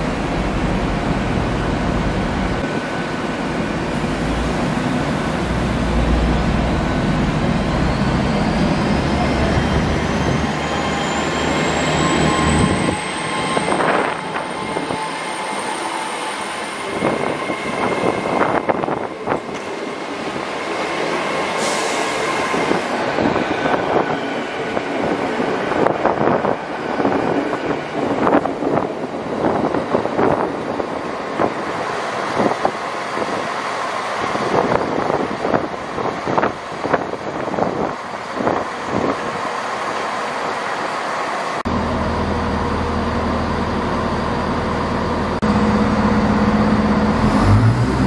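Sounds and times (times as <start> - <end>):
train engine rumble: 0.0 - 48.0
train whine rising in pitch: 2.6 - 27.8, 41.7 - 48.0.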